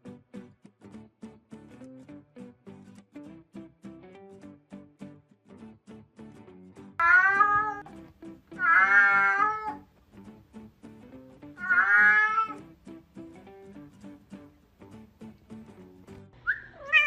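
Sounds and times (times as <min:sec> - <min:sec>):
plucked guitar music: 0:00.0 - 0:17.0
cat meowing: 0:07.0 - 0:07.9, 0:08.6 - 0:09.9, 0:11.6 - 0:12.6, 0:16.7 - 0:17.0.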